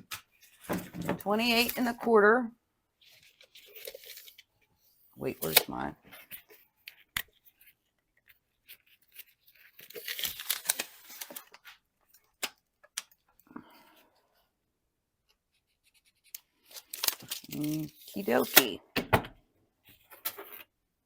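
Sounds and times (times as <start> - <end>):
foil sheet crinkling: 8.9 - 11.7, 16.7 - 18.8
foil sheet tearing: 9.8 - 11.5, 16.8 - 18.6.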